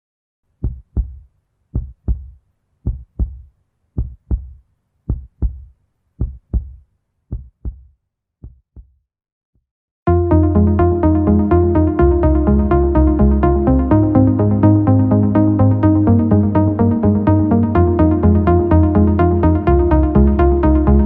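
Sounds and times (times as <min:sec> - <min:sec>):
heartbeat double thumps: 0:00.6 - 0:01.2, 0:01.8 - 0:09.0.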